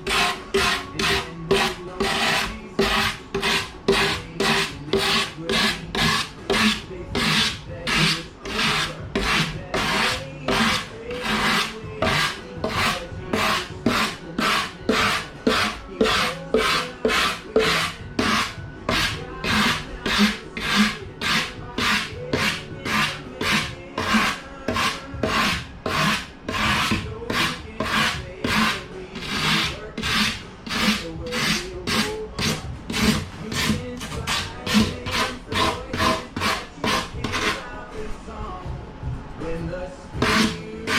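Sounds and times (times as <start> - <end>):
rasp scraping back and forth: 0.0 - 37.7, 40.2 - 40.9.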